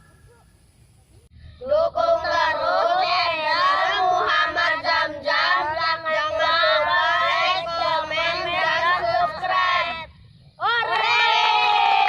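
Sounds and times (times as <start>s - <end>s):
child singing: 1.6s - 11.1s.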